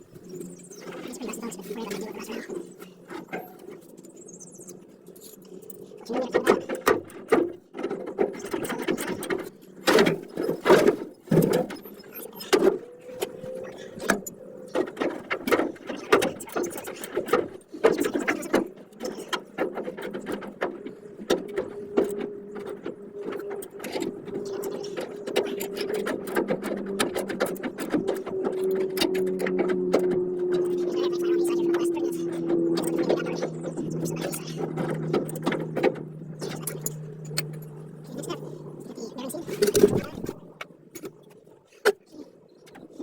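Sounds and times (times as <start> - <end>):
steady hum: 26.5 - 41.6.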